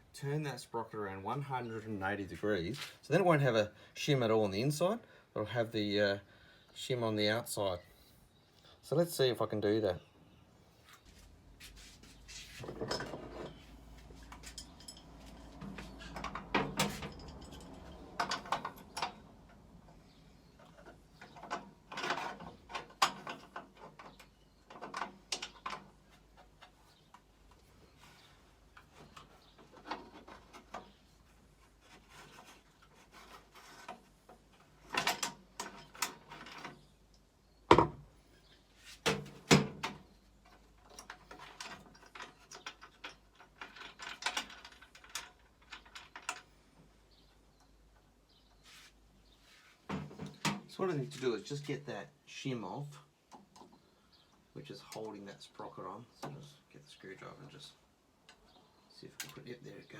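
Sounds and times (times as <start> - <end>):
hand tools clicking and knocking: 12.6 - 20.0, 20.6 - 27.7, 28.7 - 36.8.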